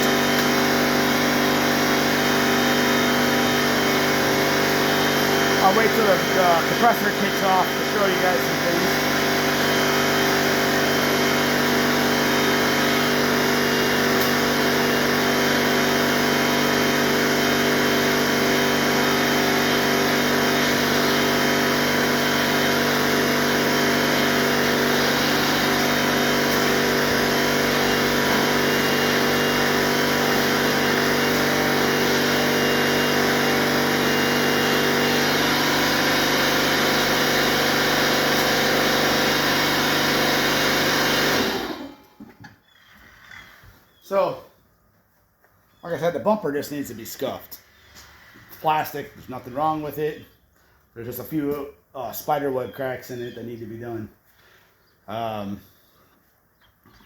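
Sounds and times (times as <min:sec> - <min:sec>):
air compressor humming: 0:00.0 - 0:42.7.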